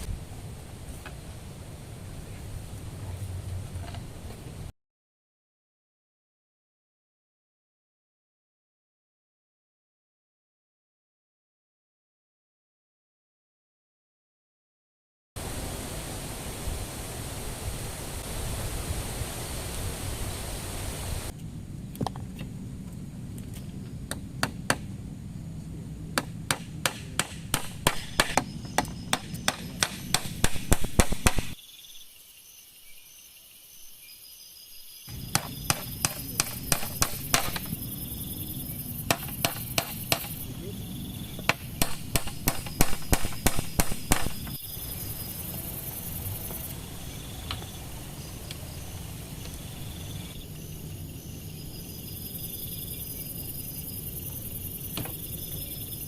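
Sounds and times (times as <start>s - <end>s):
steady hiss: 15.4s - 56.0s
sharp hammer-like knocks: 26.2s - 31.6s, 35.1s - 37.8s, 39.1s - 40.4s, 41.4s - 44.6s.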